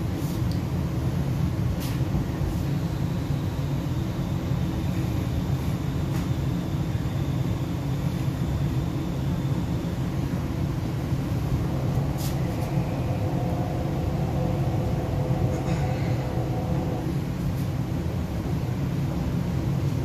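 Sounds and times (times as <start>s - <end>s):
faint steady whine: 0.0s - 20.0s
train wheels rumbling: 9.6s - 20.0s.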